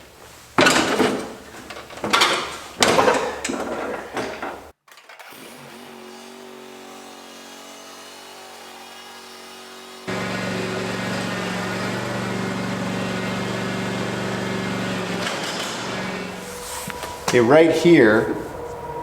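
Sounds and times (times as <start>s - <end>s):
lawn tractor engine running: 10.1s - 19.0s.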